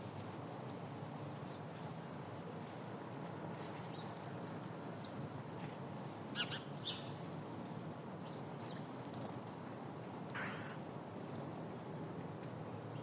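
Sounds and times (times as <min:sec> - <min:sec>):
small birds chirping: 0:03.7 - 0:05.2, 0:06.3 - 0:09.0, 0:10.3 - 0:10.8.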